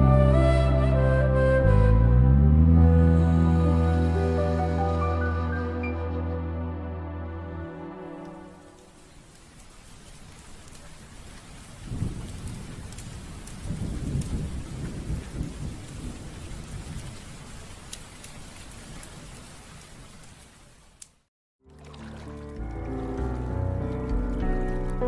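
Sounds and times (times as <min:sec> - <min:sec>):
steady rain: 0:07.8 - 0:21.3
crackles: 0:08.2 - 0:15.2
thunder rolling: 0:11.8 - 0:17.2.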